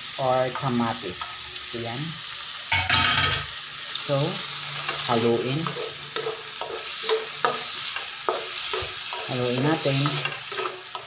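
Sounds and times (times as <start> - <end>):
vegetables sizzling in hot oil: 0.0 - 11.0
spatula scraping a wok: 3.9 - 11.0.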